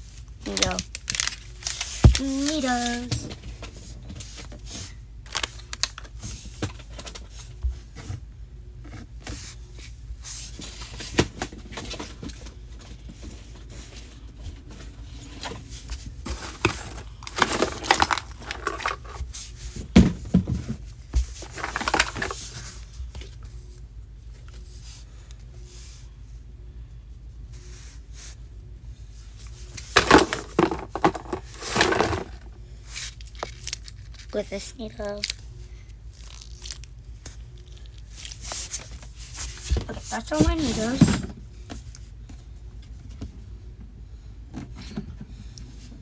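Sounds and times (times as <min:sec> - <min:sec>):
plastic crinkling: 0:00.4 - 0:03.1, 0:05.3 - 0:06.1, 0:16.3 - 0:19.2, 0:21.3 - 0:22.6, 0:29.8 - 0:32.4, 0:36.1 - 0:40.2
clicks and knocks of small objects: 0:00.4 - 0:03.4, 0:16.3 - 0:19.3, 0:21.2 - 0:22.7, 0:29.8 - 0:34.4, 0:36.1 - 0:41.3.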